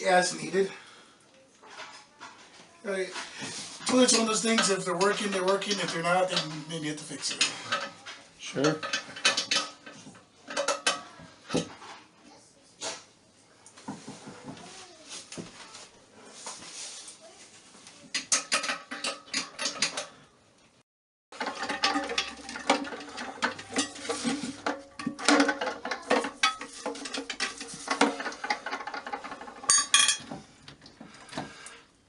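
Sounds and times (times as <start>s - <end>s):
hand tools clinking against metal: 3.8s - 8.0s, 21.4s - 30.4s.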